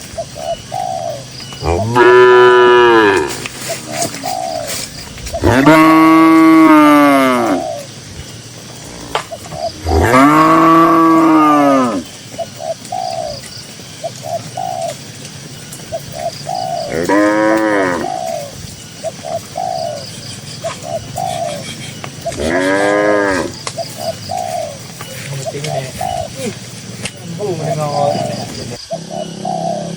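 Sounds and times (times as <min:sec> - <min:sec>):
short low bird calls: 0:00.1 - 0:15.0, 0:15.9 - 0:29.9
cows mooing: 0:01.6 - 0:03.5, 0:05.1 - 0:07.7, 0:08.6 - 0:12.3, 0:16.2 - 0:18.4, 0:20.6 - 0:24.5.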